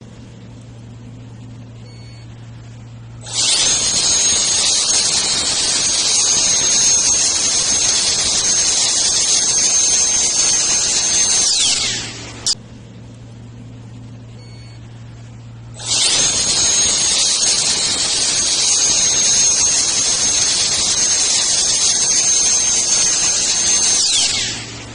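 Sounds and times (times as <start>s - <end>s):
jet blower whining: 3.0s - 12.6s, 15.5s - 24.9s.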